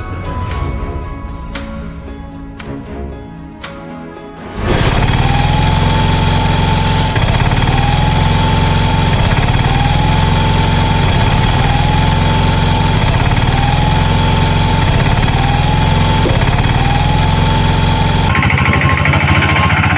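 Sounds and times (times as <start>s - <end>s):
heavy vehicle engine idling: 4.6s - 19.9s
short rising whine: 4.6s - 19.9s.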